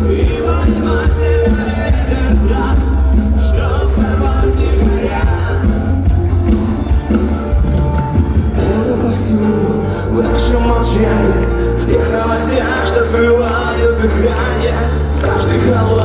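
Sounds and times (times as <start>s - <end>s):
person singing: 0.0s - 6.7s, 8.1s - 16.0s
drums: 0.0s - 16.0s
heavy bass line: 0.0s - 16.0s
live rock band: 0.0s - 16.0s.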